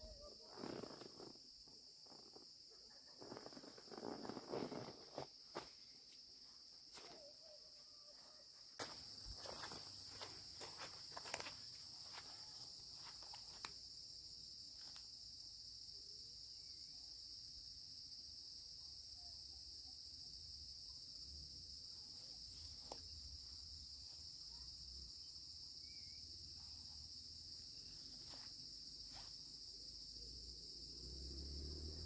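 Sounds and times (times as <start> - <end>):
high-pitched insect chorus: 0.0 - 32.0.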